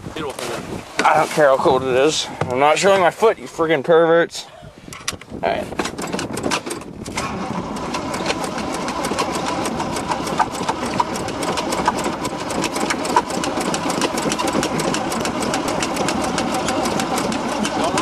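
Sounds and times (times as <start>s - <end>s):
engine cranking on starter: 5.8s - 18.0s.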